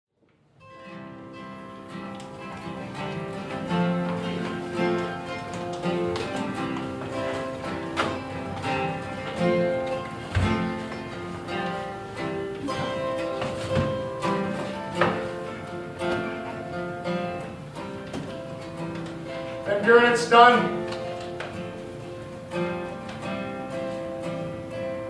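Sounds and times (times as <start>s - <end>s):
plucked acoustic guitar: 0.6s - 25.0s.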